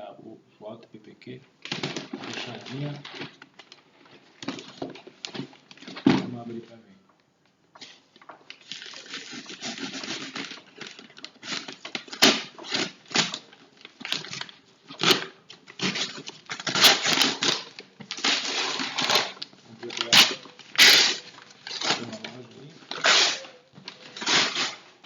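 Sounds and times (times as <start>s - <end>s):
packaging tearing and crinkling: 1.6s - 3.8s, 8.5s - 25.0s.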